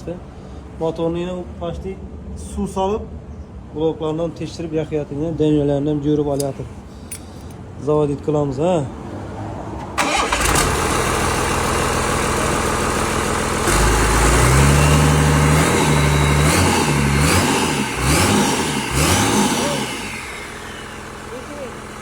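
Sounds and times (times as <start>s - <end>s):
diesel engine revving: 9.8s - 22.0s
engine starter cranking: 9.9s - 22.0s.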